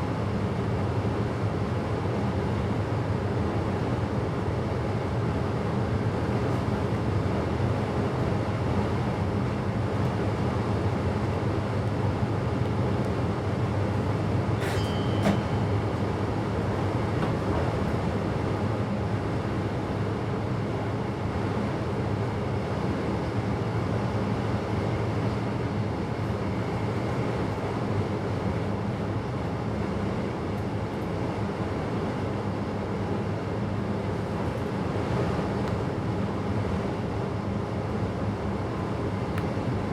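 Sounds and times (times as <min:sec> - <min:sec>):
train rumble: 0:12.6 - 0:19.8
click with high tone: 0:14.6 - 0:16.1.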